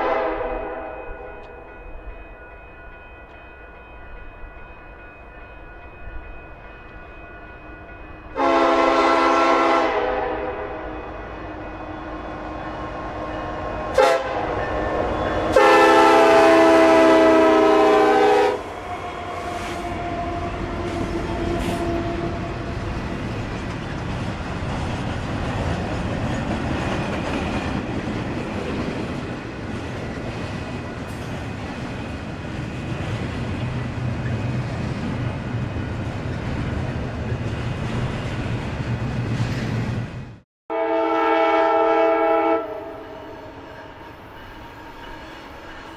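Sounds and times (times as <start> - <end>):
locomotive air horn: 0.0 - 1.0, 8.4 - 11.0, 13.8 - 22.7, 40.7 - 44.0
passing train rumble: 0.0 - 45.9.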